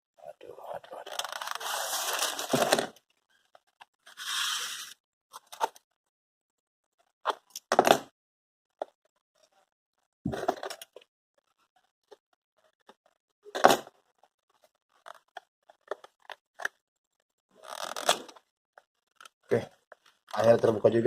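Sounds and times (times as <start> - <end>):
packaging tearing: 1.1 - 2.7.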